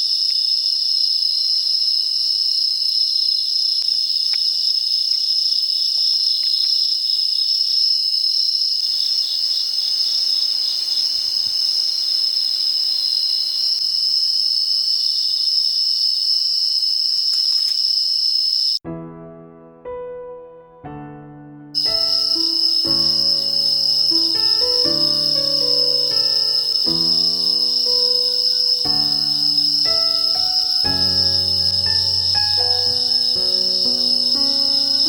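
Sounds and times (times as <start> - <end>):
crickets chirping: 0.0 - 18.8, 21.8 - 35.0.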